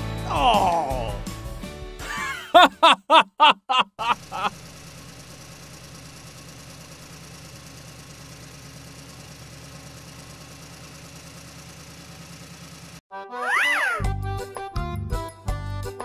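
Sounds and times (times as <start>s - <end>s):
engine idling: 4.1s - 13.0s.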